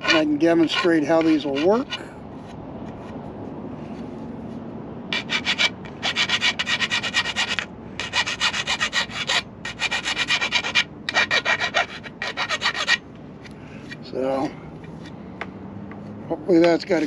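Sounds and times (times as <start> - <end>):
file rasping on metal: 0.0 - 2.1, 5.1 - 13.0.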